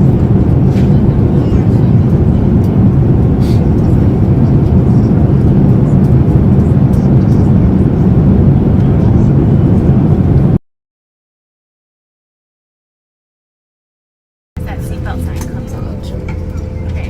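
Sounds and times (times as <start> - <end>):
vehicle rumble from inside cabin: 0.0 - 10.6.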